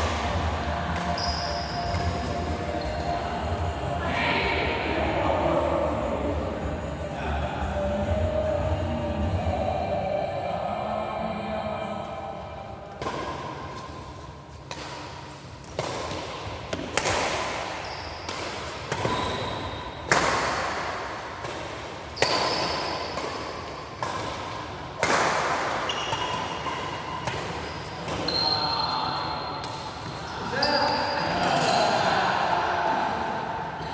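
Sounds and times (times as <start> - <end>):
ball hits echoing in hall: 14.7 - 28.3.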